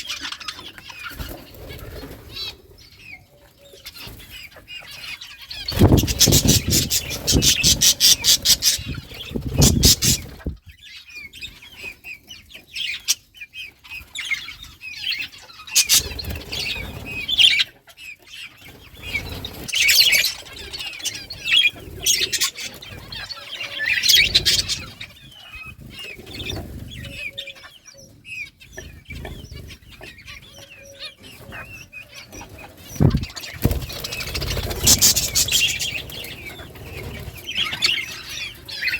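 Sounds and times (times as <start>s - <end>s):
budgies chirping: 0.0s - 38.9s
wings flapping: 5.6s - 10.6s, 32.4s - 38.9s.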